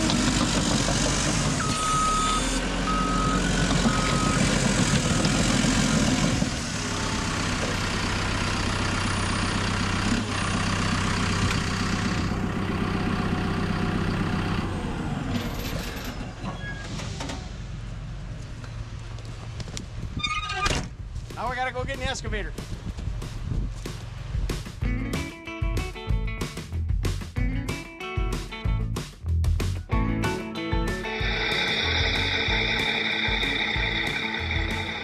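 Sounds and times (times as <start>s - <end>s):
diesel engine running: 0.0s - 20.2s, 29.9s - 35.0s
backup alarm beeps: 1.6s - 5.3s.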